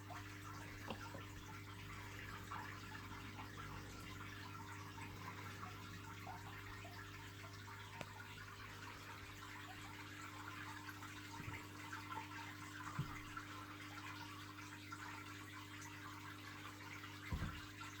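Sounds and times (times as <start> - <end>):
soft thumps: 17.3 - 17.6.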